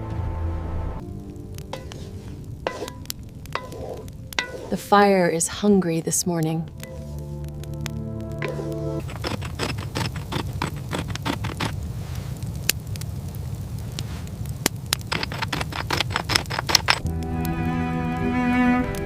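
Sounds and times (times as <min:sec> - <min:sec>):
campfire crackling and popping: 0:01.0 - 0:19.0
music with bowed strings: 0:17.0 - 0:19.0.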